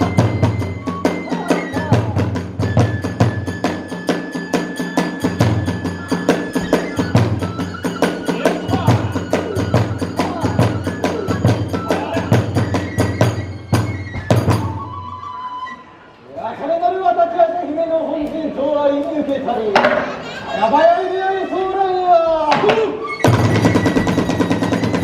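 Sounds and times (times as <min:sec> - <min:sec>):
held flute note: 0:00.0 - 0:16.3, 0:22.8 - 0:25.0.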